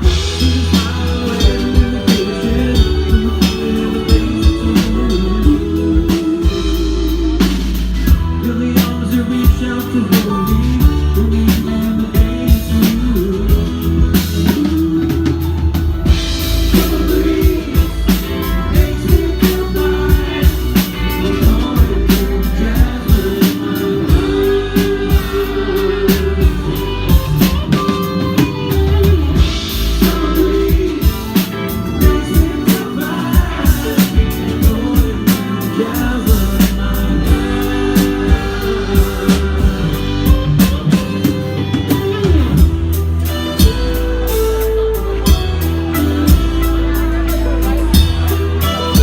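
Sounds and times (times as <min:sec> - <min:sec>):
drum kit beat: 0:00.0 - 0:49.0
soft rock band playing: 0:00.0 - 0:49.0
wavering melodic lead line: 0:00.0 - 0:49.0.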